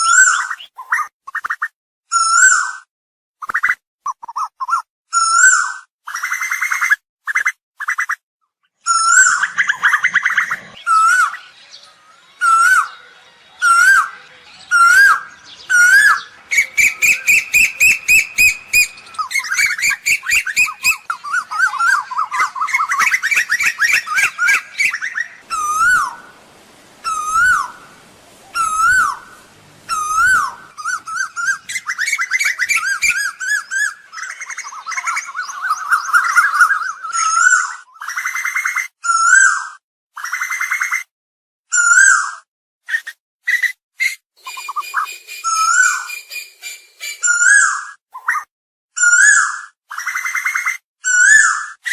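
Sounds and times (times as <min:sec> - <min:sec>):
bird calling whistled notes: 0:08.9 - 0:39.6, 0:42.9 - 0:48.4.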